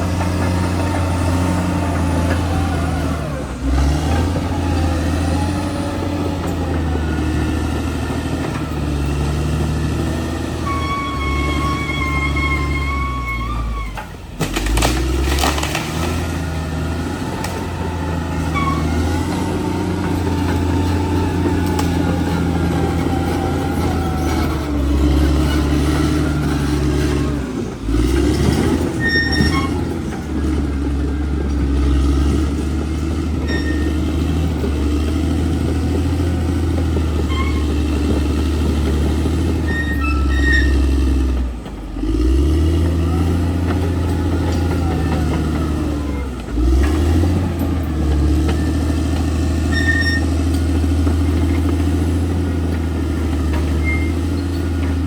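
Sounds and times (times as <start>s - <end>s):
bulldozer diesel engine running: 0.0s - 55.0s
short high squeaks: 10.6s - 14.2s, 18.4s - 19.2s, 28.9s - 30.0s, 33.4s - 34.0s, 37.2s - 38.0s, 39.5s - 41.0s, 49.6s - 50.5s, 53.7s - 54.8s.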